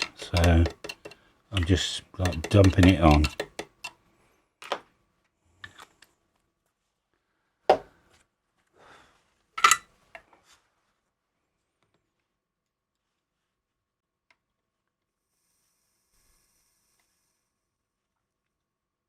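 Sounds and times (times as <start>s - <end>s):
metal tools tapping and clicking: 0.0s - 3.9s.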